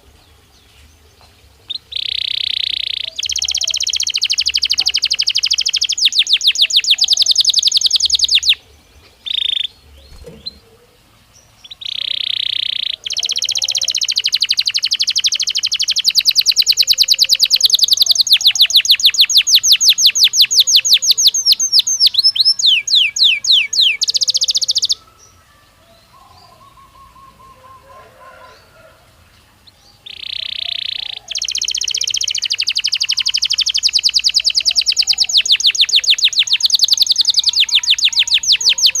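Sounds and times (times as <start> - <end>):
canary singing trills: 1.6 - 39.0.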